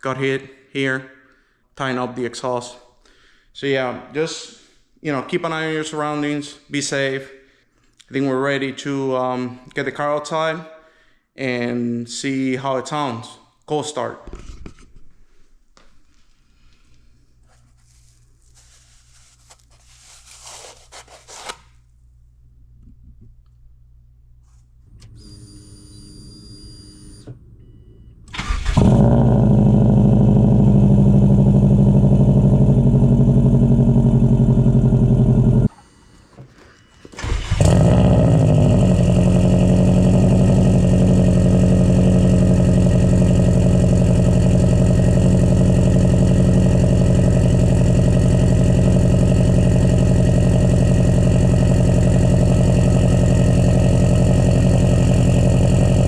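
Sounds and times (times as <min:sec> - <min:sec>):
car engine starting and idling: 0:27.2 - 0:35.7, 0:37.2 - 0:56.0.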